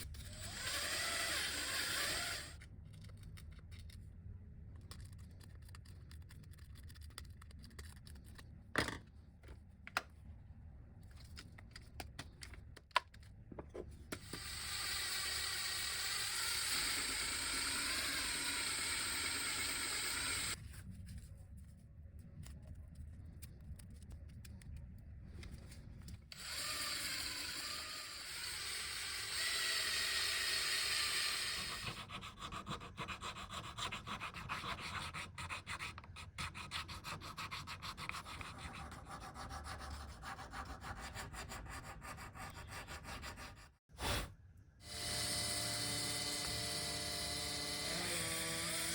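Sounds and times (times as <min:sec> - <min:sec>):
small power tool running: 0:00.3 - 0:02.6, 0:14.3 - 0:20.6, 0:26.4 - 0:31.9, 0:44.8 - 0:48.9.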